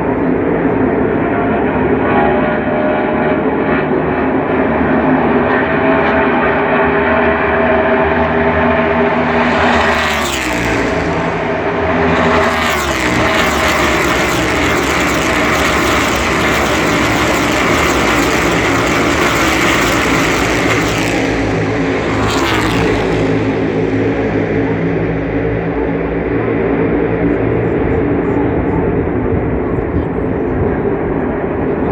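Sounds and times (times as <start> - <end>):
race car engines passing: 5.2 - 29.6.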